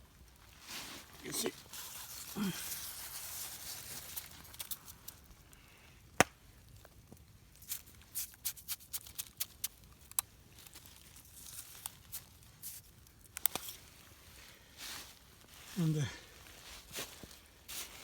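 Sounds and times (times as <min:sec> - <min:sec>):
wood fire crackling: 0:00.0 - 0:18.0
sharp pops from fire: 0:06.1 - 0:11.2, 0:11.8 - 0:13.8.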